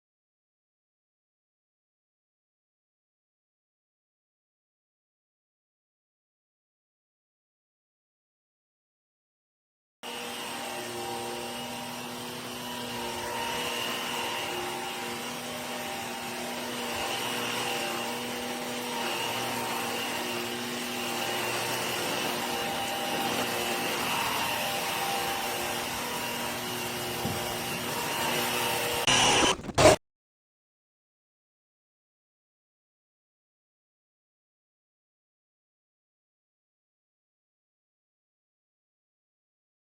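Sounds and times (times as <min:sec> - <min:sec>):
vacuum cleaner running: 0:10.0 - 0:30.0.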